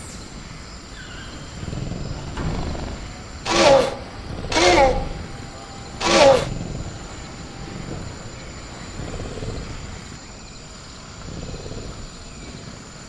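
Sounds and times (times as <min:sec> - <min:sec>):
high cricket drone: 0:00.0 - 0:13.0
low rumbling growl: 0:00.2 - 0:13.0
pitched creature shriek: 0:03.4 - 0:06.6.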